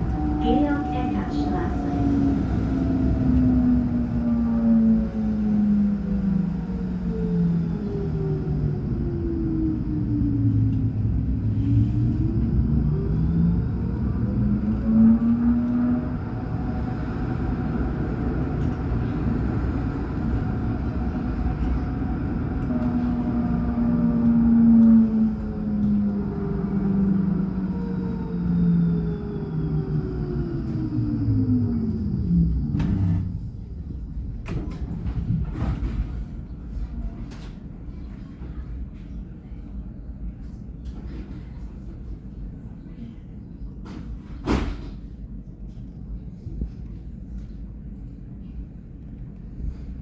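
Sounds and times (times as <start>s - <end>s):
tram traction drive whine: 0.0s - 37.8s
tram rumbling on track: 0.0s - 50.0s.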